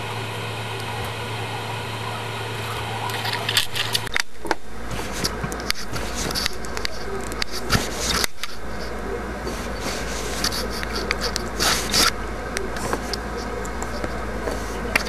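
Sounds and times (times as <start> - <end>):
steady low hum: 0.0 - 15.0
rubbing and rustling: 4.8 - 15.0.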